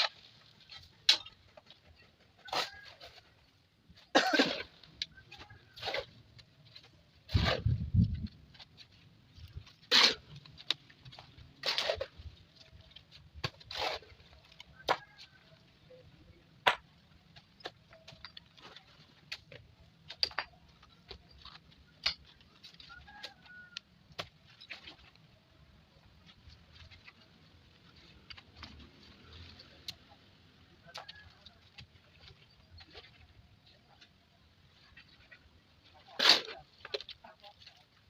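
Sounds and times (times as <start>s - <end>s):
sharp knocks and scrapes: 4.5s - 15.5s.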